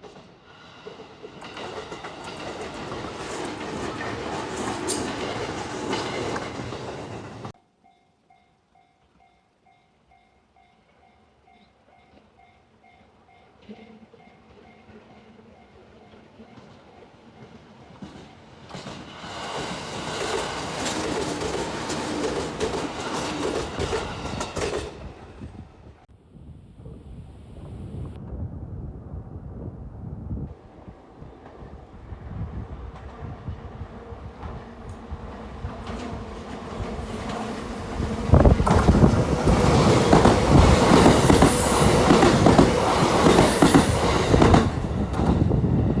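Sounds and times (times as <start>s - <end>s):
wheels clacking over rail joints: 0.0s - 7.6s, 17.4s - 25.3s, 34.4s - 45.6s
electric train passing: 0.2s - 7.6s, 14.2s - 26.1s, 29.4s - 46.0s.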